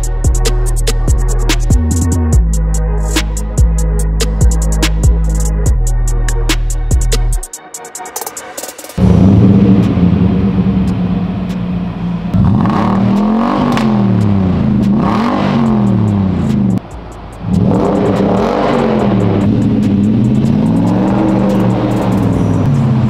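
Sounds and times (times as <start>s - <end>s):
car engine revving: 9.0s - 23.0s.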